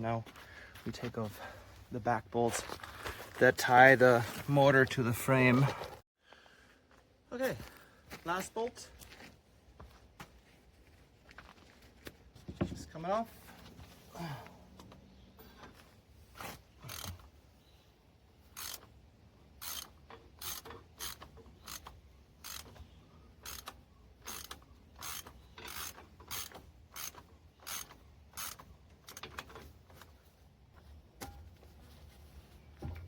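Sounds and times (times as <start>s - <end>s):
ratchet wrench clicking: 16.9s - 17.1s, 18.5s - 18.9s, 19.6s - 22.8s, 23.4s - 29.5s.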